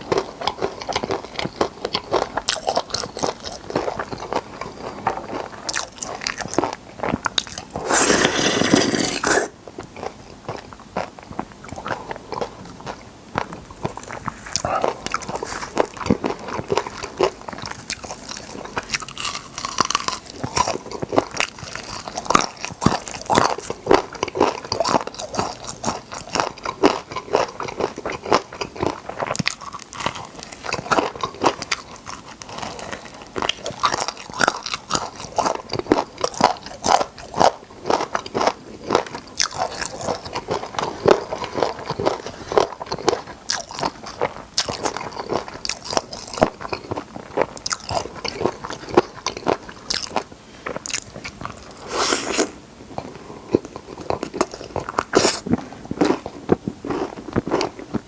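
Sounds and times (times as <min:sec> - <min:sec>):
chewing: 0:00.0 - 0:58.0
crisp crunches of biting: 0:07.4 - 0:09.6.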